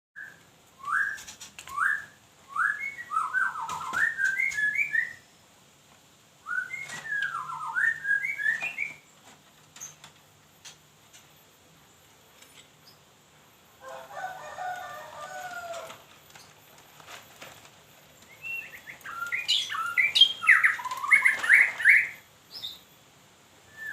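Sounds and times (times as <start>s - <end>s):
songbird singing whistled phrases: 0.2s - 5.4s, 6.4s - 9.1s, 18.3s - 22.8s, 23.7s - 23.9s.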